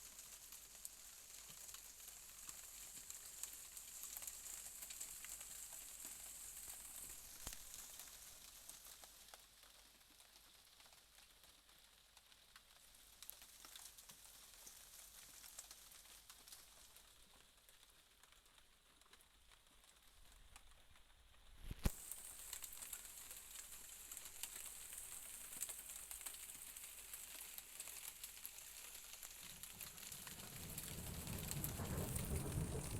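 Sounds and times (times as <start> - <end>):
faint rain hiss: 0.0 - 32.9
raindrop ticks: 0.0 - 32.9.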